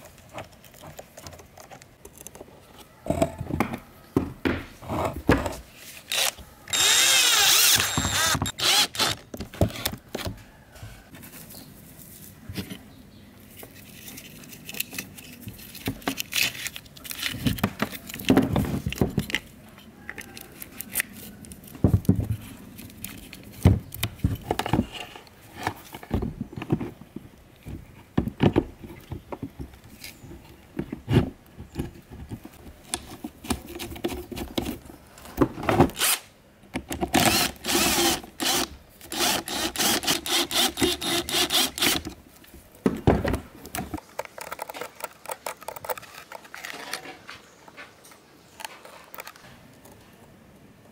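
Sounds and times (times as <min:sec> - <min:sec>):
clicks knocks and scraping of tools: 0:00.0 - 0:06.8, 0:12.5 - 0:37.5, 0:38.4 - 0:50.2
small motor whirring: 0:06.1 - 0:09.2.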